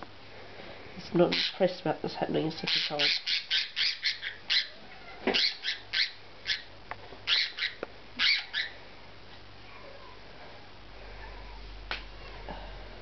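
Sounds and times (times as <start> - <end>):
bird squawking: 1.3 - 1.6, 2.7 - 6.7, 7.3 - 8.8.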